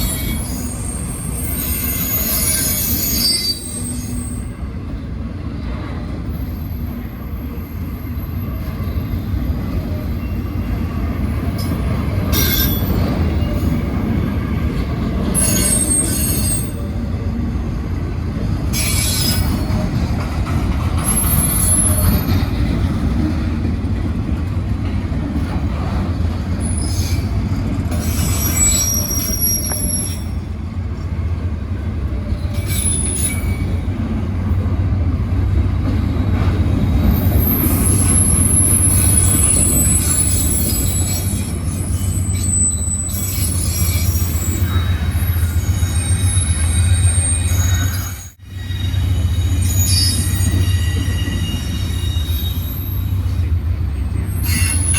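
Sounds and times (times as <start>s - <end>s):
wheel squeals and screeches: 0.0s - 4.5s, 15.2s - 16.9s, 18.7s - 19.9s, 21.0s - 22.6s, 26.5s - 30.5s, 32.4s - 33.9s, 36.8s - 54.9s
freight train rumbling on rails: 0.0s - 54.9s.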